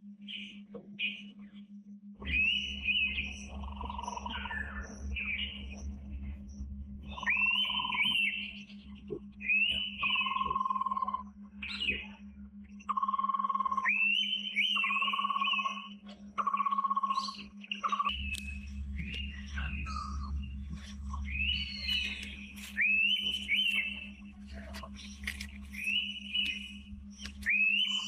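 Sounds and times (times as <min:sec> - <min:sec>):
steady low hum: 0:00.0 - 0:28.0
bird whistled calls: 0:02.2 - 0:05.6, 0:07.1 - 0:08.7, 0:09.4 - 0:12.2, 0:13.5 - 0:24.2, 0:25.7 - 0:28.0.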